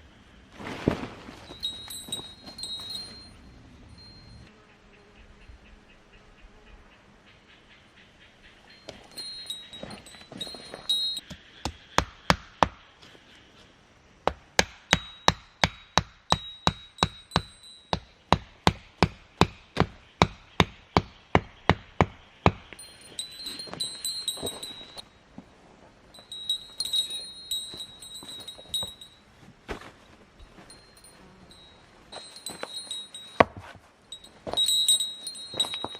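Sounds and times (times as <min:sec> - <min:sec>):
light metallic clinks: 0:01.4 - 0:04.5, 0:08.6 - 0:11.3, 0:14.9 - 0:18.2, 0:22.7 - 0:25.2, 0:26.1 - 0:29.4, 0:30.4 - 0:35.9
hammer striking metal stake: 0:14.3 - 0:22.8.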